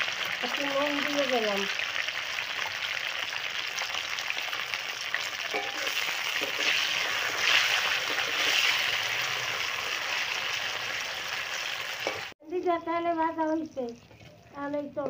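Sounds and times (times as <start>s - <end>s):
okra sizzling in hot oil: 0.0s - 15.0s
metal spatula stirring in wok: 5.4s - 8.9s.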